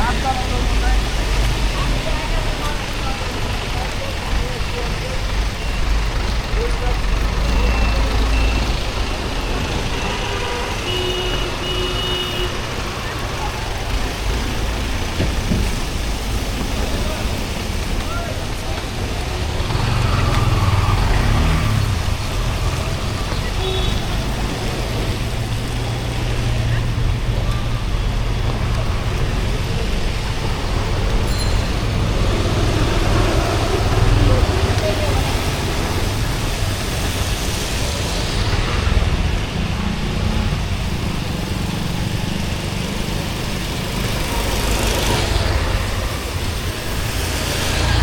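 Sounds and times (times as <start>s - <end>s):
rain hiss: 0.0s - 48.0s
vehicle rumble: 0.0s - 48.0s.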